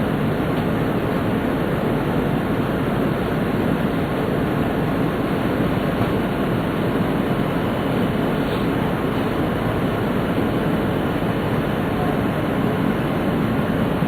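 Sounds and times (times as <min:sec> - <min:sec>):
train running noise: 0:00.0 - 0:14.0.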